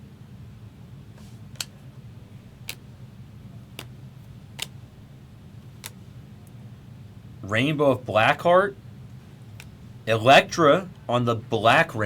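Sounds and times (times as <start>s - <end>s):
low steady hum: 0.0s - 12.0s
trading cards clicking on table: 2.6s - 2.8s, 3.7s - 4.0s.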